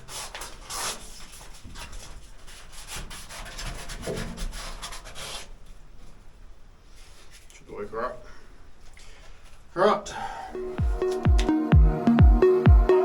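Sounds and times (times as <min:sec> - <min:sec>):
sandpaper rasping: 0:00.0 - 0:05.6.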